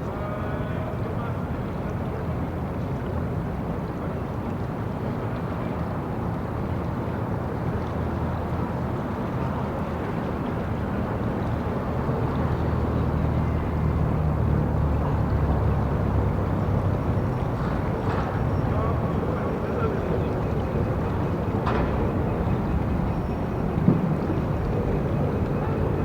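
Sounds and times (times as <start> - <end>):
street traffic rumble: 10.8 - 26.0.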